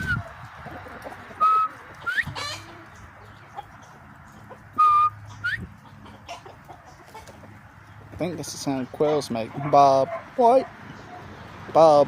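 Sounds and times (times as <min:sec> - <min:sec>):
quail whistling call: 0:00.0 - 0:00.3, 0:01.4 - 0:02.8, 0:04.8 - 0:05.7.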